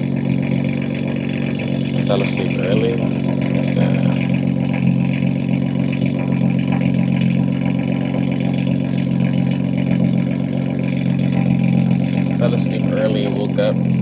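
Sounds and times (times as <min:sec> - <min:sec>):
car exhaust drone cruising: 0:00.0 - 0:14.0.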